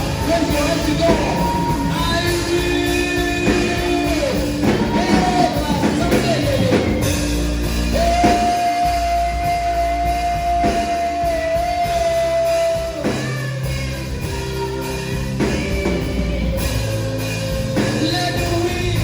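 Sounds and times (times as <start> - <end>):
slow worship band music: 0.0 - 19.0.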